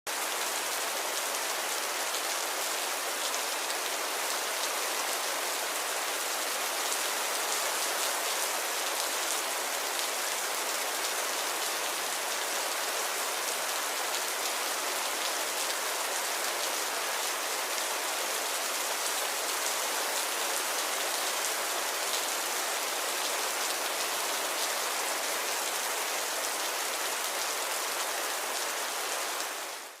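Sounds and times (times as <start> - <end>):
light rain pattering: 0.1 - 30.0.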